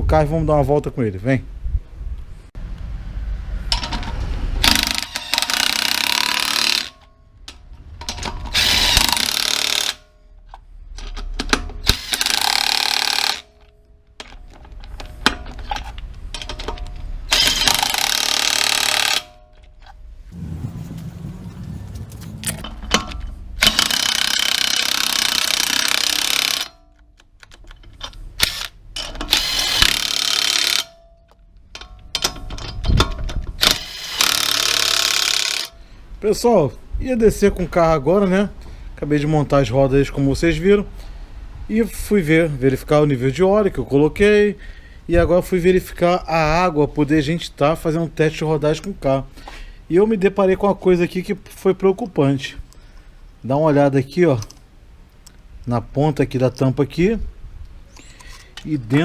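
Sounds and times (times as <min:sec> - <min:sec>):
impact wrench bursts: 0:08.5 - 0:10.0, 0:11.8 - 0:13.5.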